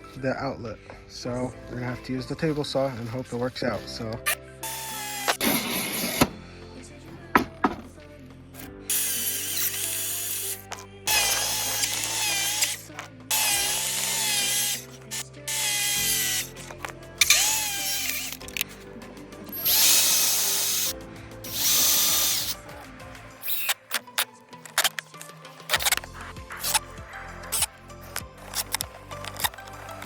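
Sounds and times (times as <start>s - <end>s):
quiet background music: 0.0s - 30.0s
table saw cutting: 4.7s - 6.4s, 8.9s - 18.6s, 19.5s - 20.9s, 21.5s - 22.6s.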